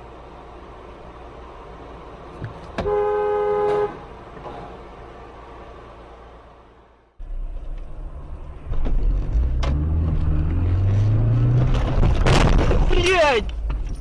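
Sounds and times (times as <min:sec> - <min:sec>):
car road noise: 0:00.0 - 0:14.0
car engine accelerating: 0:07.2 - 0:12.3.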